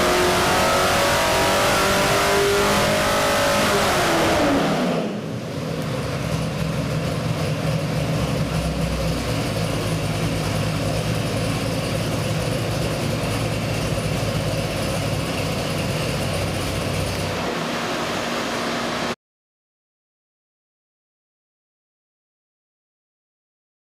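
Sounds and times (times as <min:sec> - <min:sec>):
car engine idling: 0:05.0 - 0:18.6.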